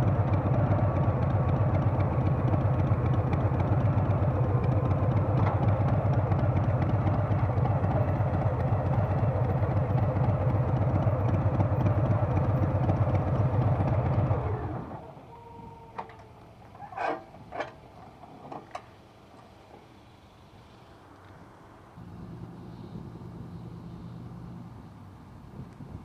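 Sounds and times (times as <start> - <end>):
motorcycle engine running: 0.0 - 15.1, 22.0 - 26.0.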